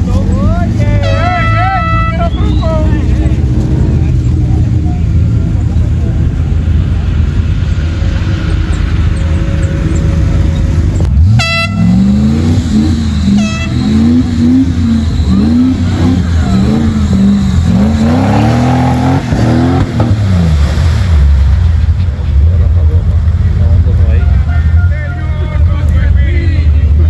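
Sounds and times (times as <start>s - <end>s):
vehicle engine revving: 0.0s - 27.0s
horn toots: 0.8s - 3.7s, 9.5s - 20.0s, 24.0s - 26.8s.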